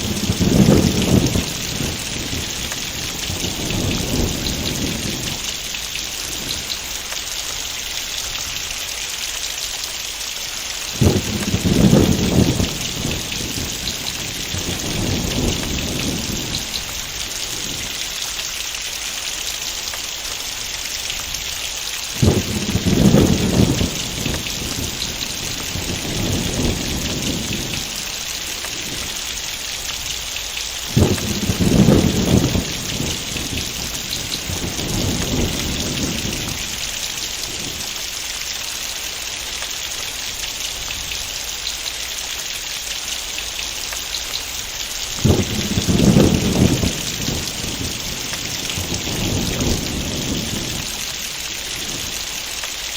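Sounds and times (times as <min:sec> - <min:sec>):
thunder rolling: 0:00.0 - 0:07.0, 0:10.9 - 0:18.2, 0:22.1 - 0:29.6, 0:30.8 - 0:37.9, 0:45.1 - 0:52.4
heavy rain falling: 0:00.0 - 0:52.9.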